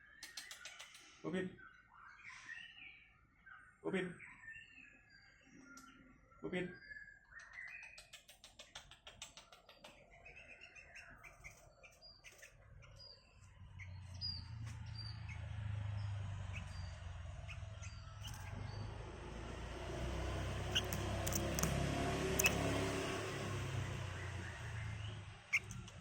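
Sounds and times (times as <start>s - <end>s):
bird chirping: 0.0s - 26.0s
patter of clicks: 0.1s - 1.2s, 7.4s - 10.4s, 20.6s - 22.8s, 25.5s - 26.0s.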